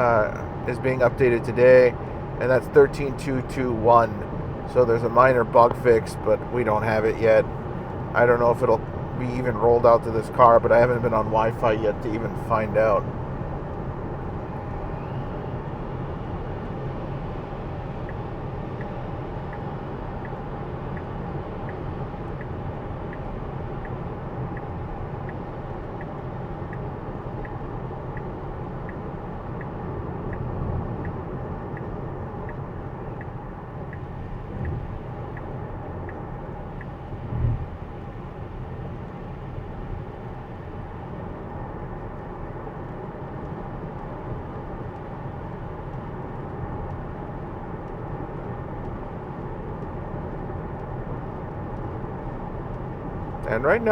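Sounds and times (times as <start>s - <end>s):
turn signal ticking: 0.0s - 53.9s
low thumps: 34.4s - 35.1s, 37.2s - 37.9s.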